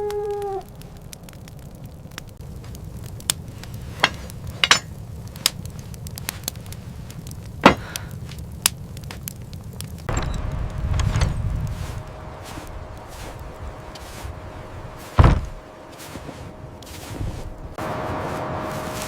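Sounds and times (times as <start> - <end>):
low rumble: 0.0 - 19.0
sharp cracks and knocks: 0.1 - 14.4, 15.0 - 17.3
loud rushing noise with tone: 10.1 - 19.0.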